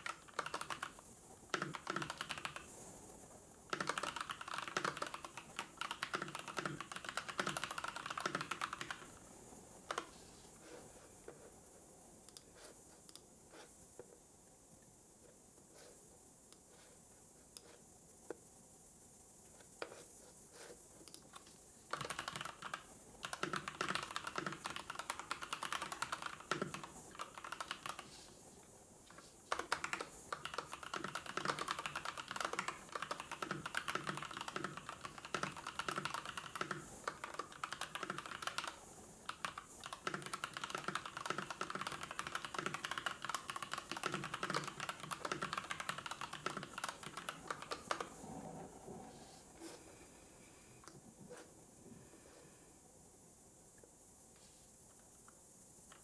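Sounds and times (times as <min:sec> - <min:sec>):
typing on computer keyboard: 0:00.0 - 0:02.8, 0:03.7 - 0:09.2, 0:09.9 - 0:10.1, 0:21.1 - 0:28.2, 0:29.1 - 0:48.2.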